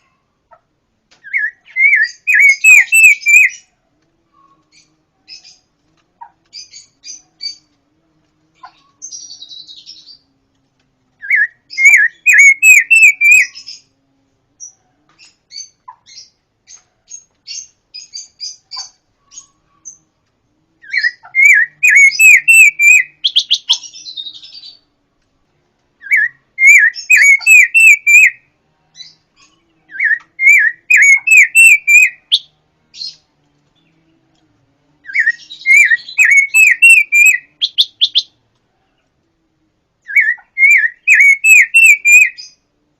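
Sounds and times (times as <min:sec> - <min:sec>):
songbird chirping rapidly: 0:00.0 - 0:03.7, 0:08.6 - 0:10.3, 0:11.2 - 0:14.0, 0:20.8 - 0:24.9, 0:26.0 - 0:34.2, 0:35.0 - 0:39.2, 0:40.0 - 0:42.6.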